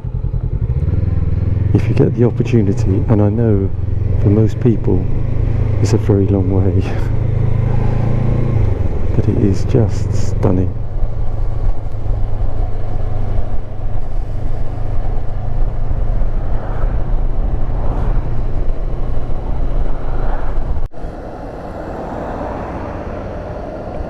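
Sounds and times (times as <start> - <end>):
motorcycle engine running: 0.0 - 20.9
quiet engine hum: 0.0 - 24.0
wind and road noise: 0.0 - 24.0.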